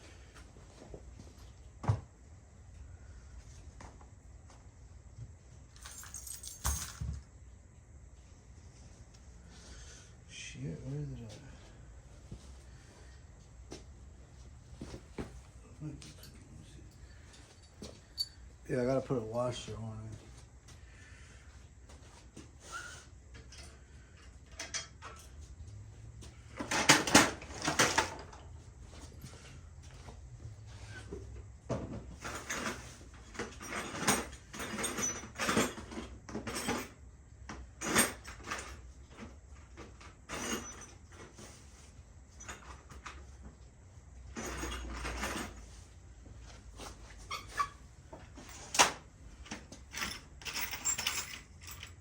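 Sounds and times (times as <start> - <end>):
small metal parts clinking and rattling: 5.7 - 7.3, 16.1 - 18.5, 32.2 - 37.0, 44.3 - 45.6, 48.4 - 52.0.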